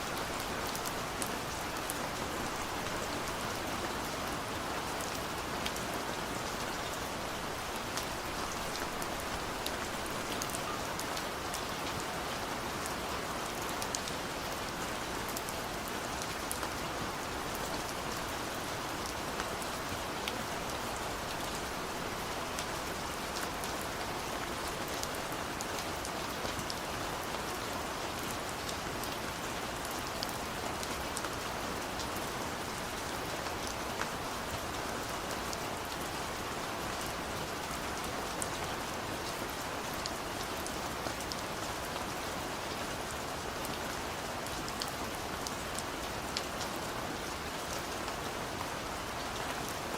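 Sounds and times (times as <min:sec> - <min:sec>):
steady rain: 0:00.0 - 0:49.9
raindrops ticking on a surface: 0:00.1 - 0:18.4.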